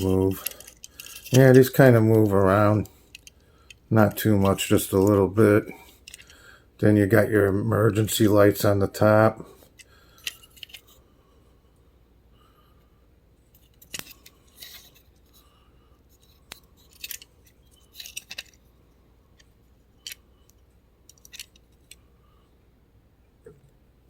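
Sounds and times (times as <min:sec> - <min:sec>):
toy truck parts clicking: 0:00.0 - 0:03.8, 0:05.9 - 0:06.4, 0:09.7 - 0:11.0, 0:13.6 - 0:15.2, 0:16.1 - 0:18.7, 0:19.4 - 0:22.0.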